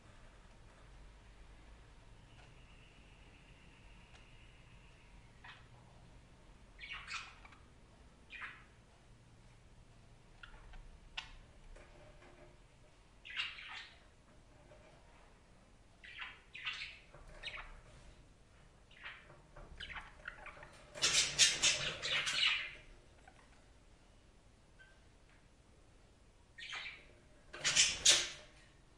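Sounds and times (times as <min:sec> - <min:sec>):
budgerigars chirping and squawking: 0:05.0 - 0:05.7, 0:06.8 - 0:07.7, 0:08.3 - 0:08.8, 0:13.2 - 0:14.8, 0:16.0 - 0:18.1, 0:18.9 - 0:23.6, 0:26.6 - 0:28.6.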